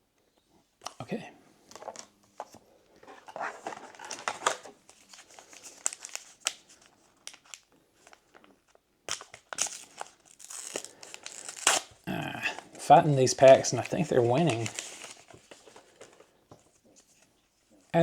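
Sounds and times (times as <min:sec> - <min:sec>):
wrapper tearing and crinkling: 0:03.4 - 0:12.7, 0:13.4 - 0:15.7.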